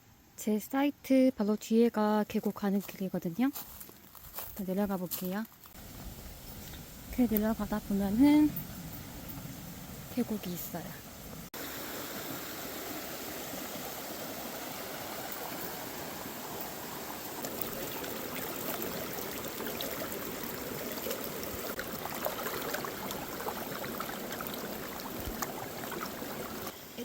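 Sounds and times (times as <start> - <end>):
stream rushing: 5.8 - 27.0
short splashes and clicks: 17.4 - 26.7.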